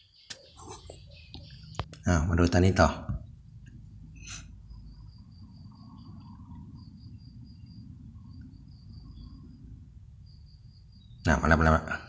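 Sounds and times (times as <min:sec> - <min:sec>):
low background noise: 0:00.0 - 0:12.0
insect trilling: 0:04.1 - 0:11.6.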